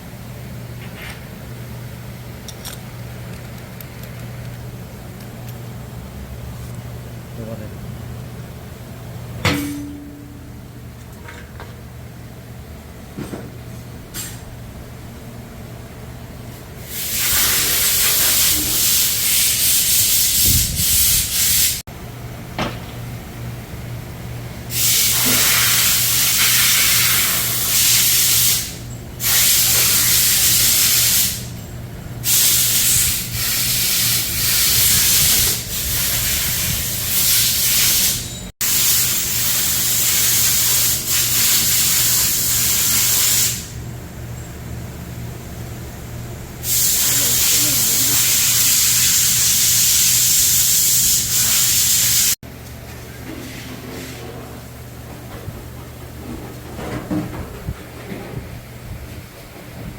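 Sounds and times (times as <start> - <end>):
steady low hum: 0.0 - 16.9, 43.6 - 48.4
hissing spray bursts: 16.8 - 21.8, 24.7 - 31.5, 32.2 - 43.8, 46.6 - 52.4.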